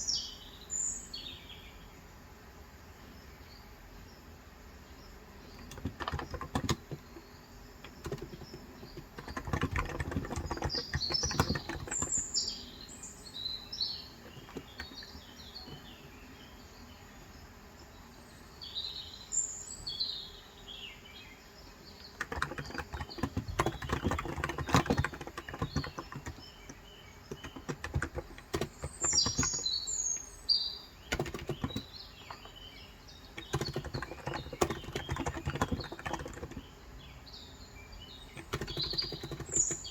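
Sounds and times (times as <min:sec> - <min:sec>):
birds chirping: 0:00.0 - 0:39.9
keyboard typing: 0:05.6 - 0:12.5, 0:14.0 - 0:16.1, 0:22.0 - 0:30.3, 0:31.0 - 0:32.6, 0:33.2 - 0:36.7, 0:38.3 - 0:39.9.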